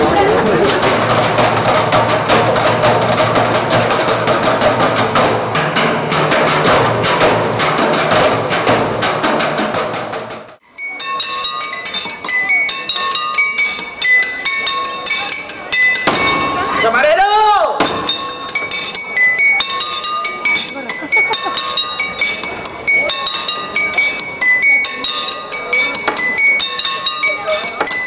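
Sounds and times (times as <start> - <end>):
rhythmic percussion on objects: 0.0 - 16.9, 17.8 - 28.0
ringing pings from struck objects: 10.6 - 16.8, 17.8 - 28.0.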